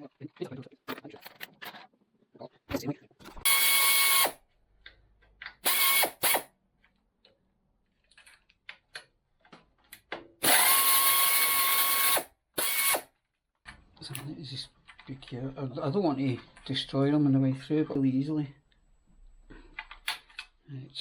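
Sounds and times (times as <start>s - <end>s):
electric drill-driver whine: 3.5s - 4.4s, 5.6s - 6.5s, 10.4s - 13.1s.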